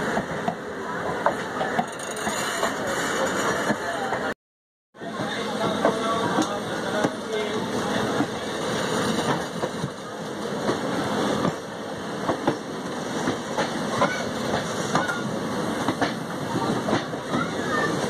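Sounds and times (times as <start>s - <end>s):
train coaches rumbling on track: 0.0s - 4.4s, 5.0s - 18.0s
wheels clicking over rails: 1.2s - 4.2s.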